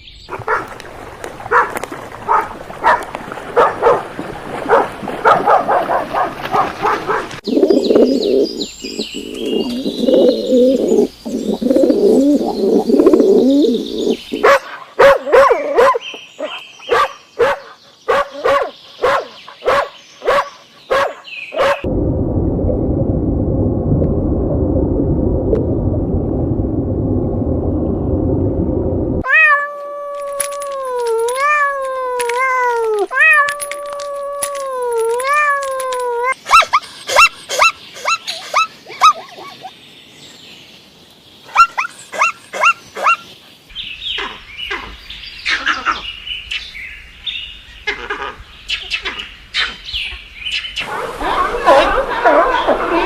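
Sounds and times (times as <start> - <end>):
low rumbling: 21.8 - 29.2
clicks and short calls: 30.1 - 38.6.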